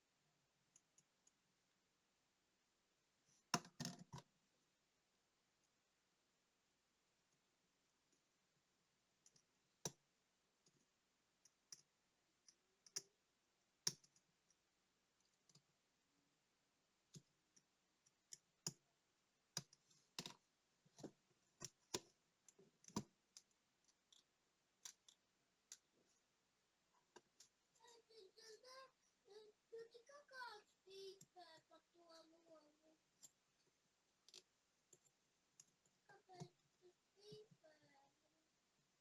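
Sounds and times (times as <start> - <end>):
small sharp clicks and taps: 13.9 - 14.6, 19.6 - 25.9.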